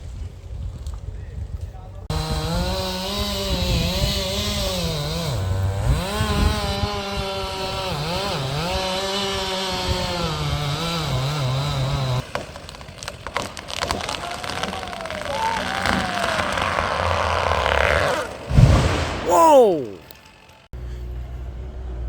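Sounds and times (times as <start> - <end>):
sharp wood cracks: 12.2 - 19.3.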